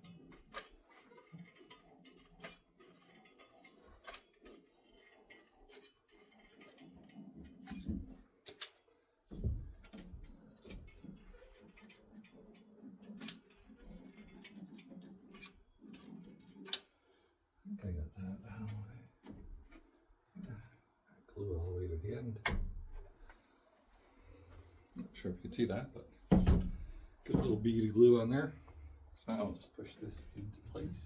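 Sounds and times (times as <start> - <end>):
dull thump: 26.3 - 27.6.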